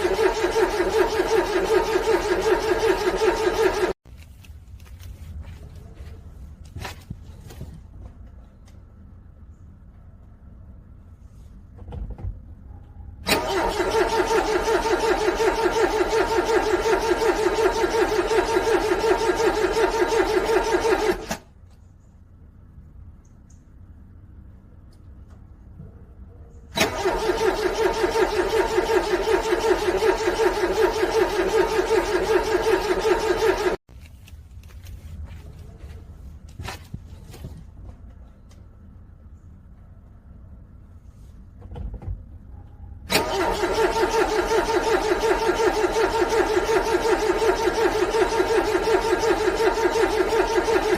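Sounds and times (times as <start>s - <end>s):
car starter motor cranking: 0.0s - 4.0s, 13.2s - 21.5s, 26.7s - 33.8s, 43.1s - 50.9s.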